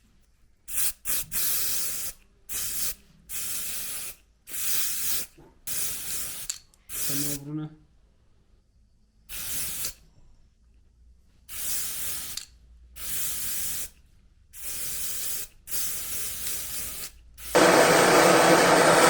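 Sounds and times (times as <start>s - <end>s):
spray can bursts: 0.7s - 7.4s, 9.3s - 10.0s, 11.5s - 13.9s, 14.6s - 19.0s
loud steady motor noise: 17.6s - 19.0s.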